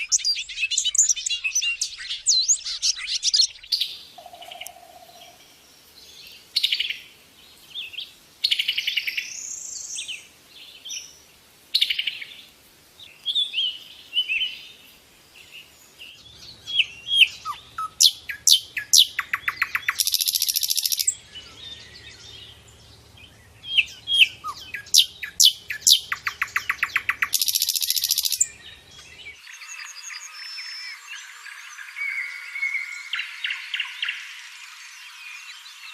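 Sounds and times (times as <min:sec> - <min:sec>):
songbird singing: 0:00.0 - 0:35.9.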